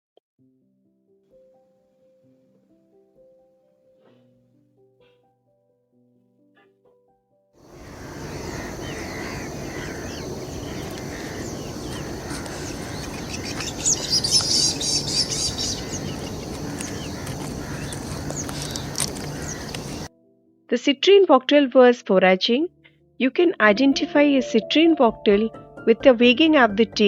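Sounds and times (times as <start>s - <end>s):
outdoor background hiss: 7.6s - 20.1s
small birds chirping: 7.6s - 20.1s
fast high twittering song: 7.7s - 18.8s.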